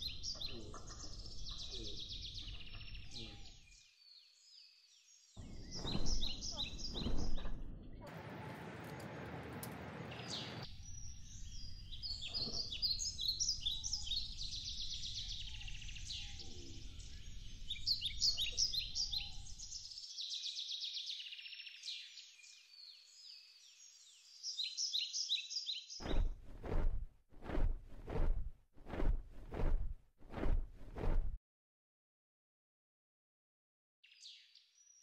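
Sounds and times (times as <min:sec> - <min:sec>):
small songbirds chirping: 0:00.0 - 0:08.1, 0:10.0 - 0:26.4, 0:34.0 - 0:35.0
loud low thuds: 0:26.0 - 0:31.4.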